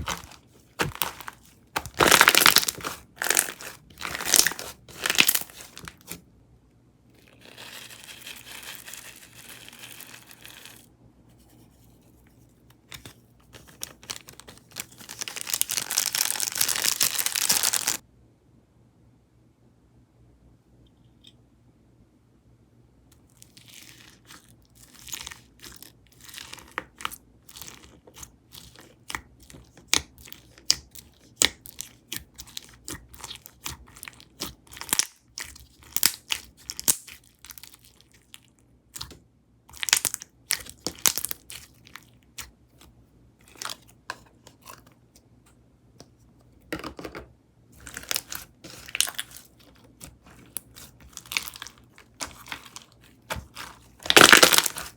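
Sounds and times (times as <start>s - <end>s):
slime crackling and popping: 0.0s - 6.2s, 14.1s - 18.0s, 23.5s - 38.4s, 39.7s - 42.5s, 47.8s - 54.9s.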